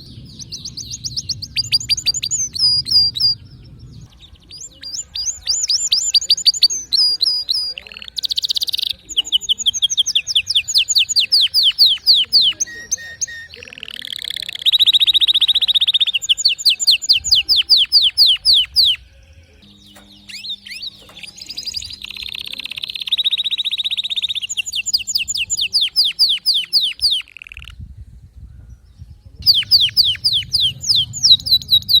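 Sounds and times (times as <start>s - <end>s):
canary singing: 0.0s - 27.8s, 29.4s - 32.0s.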